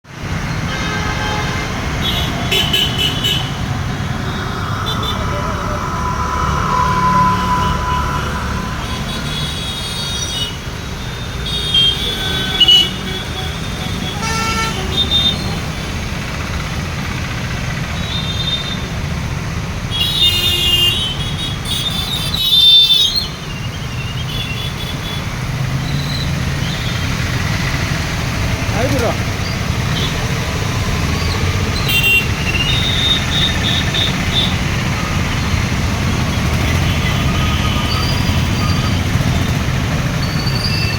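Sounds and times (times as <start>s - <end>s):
road traffic rumble: 0.0s - 40.9s
high-pitched horn toots: 0.7s - 13.1s.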